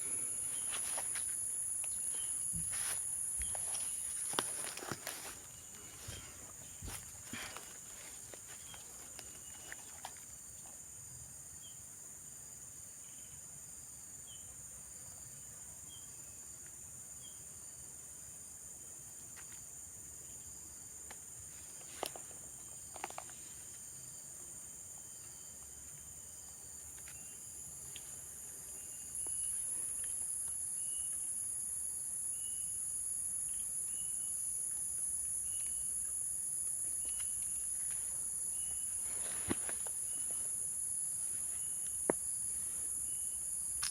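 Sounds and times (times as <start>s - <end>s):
short insect chirps: 0.0s - 10.6s, 21.6s - 43.9s
high-pitched insect chorus: 0.0s - 43.9s.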